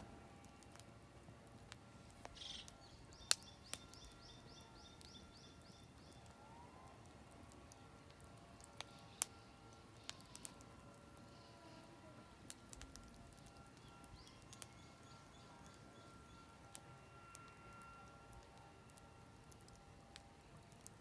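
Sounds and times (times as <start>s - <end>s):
campfire crackling and popping: 0.0s - 21.0s
songbird singing high notes: 2.4s - 6.2s.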